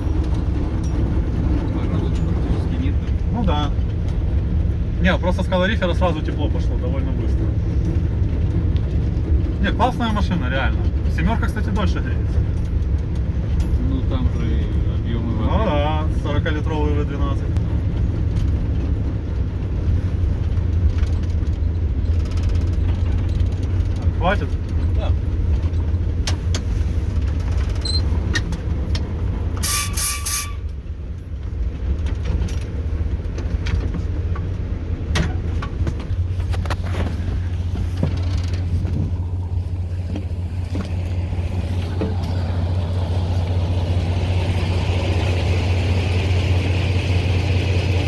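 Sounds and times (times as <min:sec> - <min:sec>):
diesel engine humming: 0:00.0 - 0:48.0
high-pitched squeal: 0:29.6 - 0:30.7.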